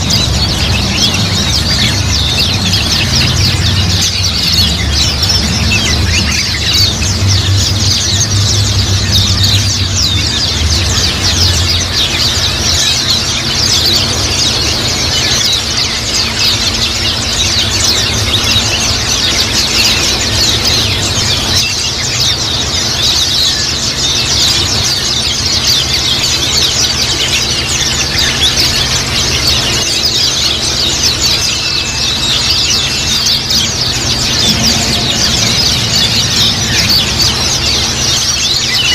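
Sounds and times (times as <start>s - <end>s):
flock of birds chirping: 0.0s - 38.9s
low steady hum: 0.0s - 38.9s.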